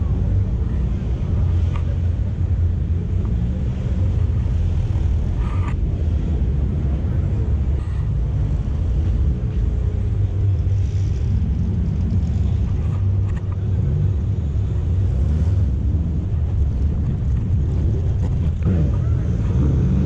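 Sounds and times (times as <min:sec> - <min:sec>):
car engines idling: 0:00.0 - 0:20.0.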